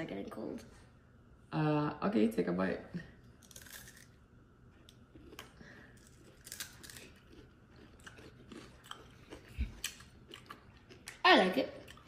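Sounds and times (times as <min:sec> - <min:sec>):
biting and chewing: 0:03.4 - 0:12.0
crunchy coating crunches: 0:03.4 - 0:12.0.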